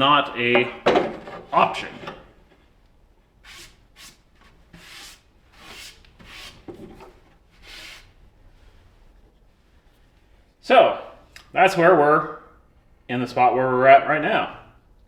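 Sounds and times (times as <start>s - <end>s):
rubbing across wood: 3.4s - 8.2s.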